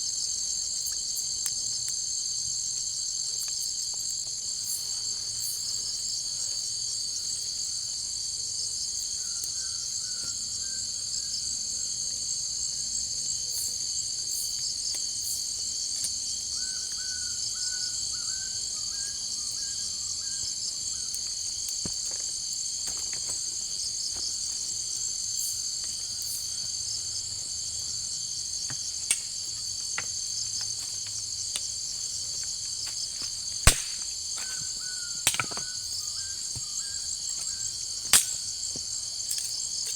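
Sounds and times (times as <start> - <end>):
chorus of insects: 0.0 - 39.9.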